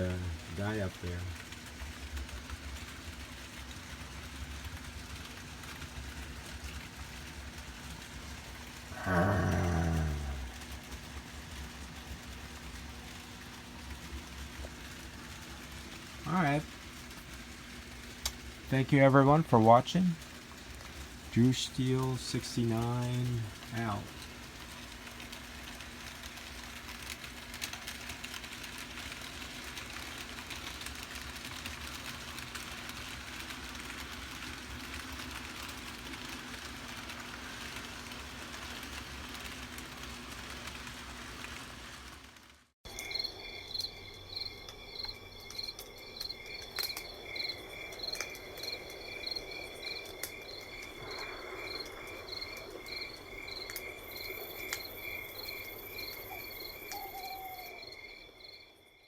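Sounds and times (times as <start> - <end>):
steady hiss with low hum: 0.0 - 59.0
crickets chirping: 42.9 - 59.0.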